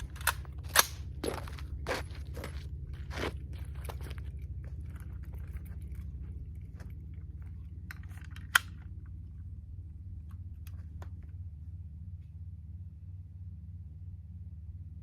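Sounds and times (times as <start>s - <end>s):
handling clicks and rattles: 0.0s - 9.5s
steady low rumble: 0.0s - 15.0s.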